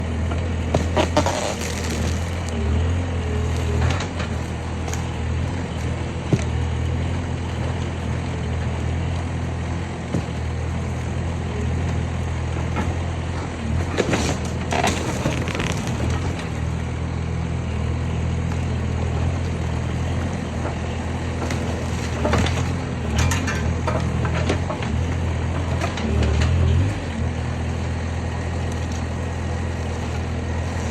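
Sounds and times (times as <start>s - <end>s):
skid steer engine running: 0.0s - 30.9s
wood frame cracking and crunching: 0.7s - 2.6s, 3.3s - 5.3s, 14.1s - 16.6s.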